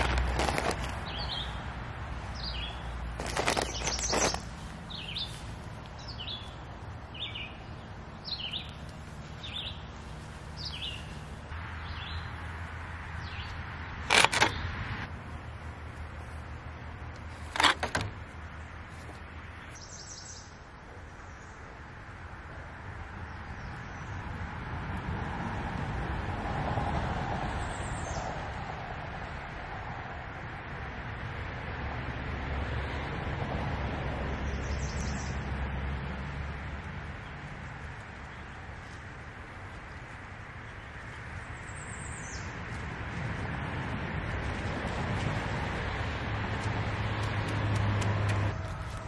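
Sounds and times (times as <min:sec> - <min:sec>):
rustling scrapes: 0:00.0 - 0:01.2, 0:03.1 - 0:05.7, 0:14.0 - 0:14.6, 0:17.2 - 0:18.3
songbird chirping: 0:00.0 - 0:14.7, 0:16.2 - 0:21.8, 0:37.1 - 0:42.9.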